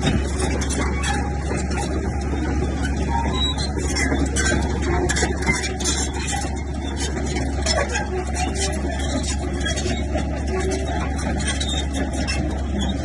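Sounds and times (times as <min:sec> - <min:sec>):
heavy diesel machinery engine: 0:00.0 - 0:13.0
machinery clattering: 0:00.0 - 0:13.0.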